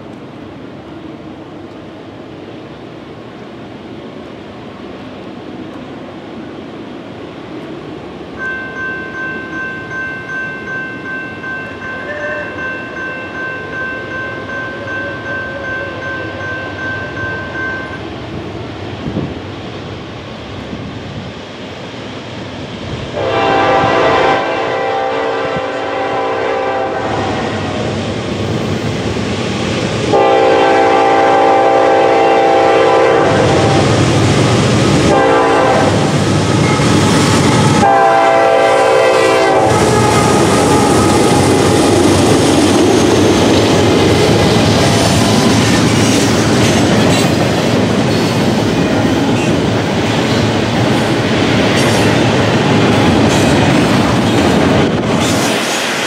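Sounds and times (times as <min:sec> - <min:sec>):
locomotive horn blasts: 0:23.2 - 0:27.7, 0:30.1 - 0:33.9, 0:35.1 - 0:36.8, 0:37.8 - 0:41.4
freight cars rumbling and rattling past: 0:26.7 - 0:56.0.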